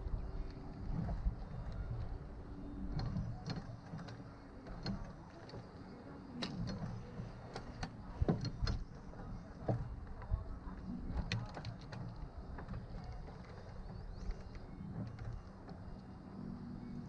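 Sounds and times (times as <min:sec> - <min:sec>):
light clicks and knocks: 0:02.8 - 0:17.0.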